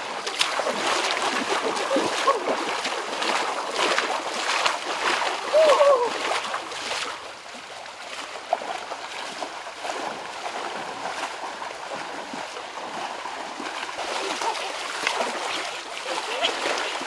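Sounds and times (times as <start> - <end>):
stream water rushing and splashing: 0.0 - 17.0.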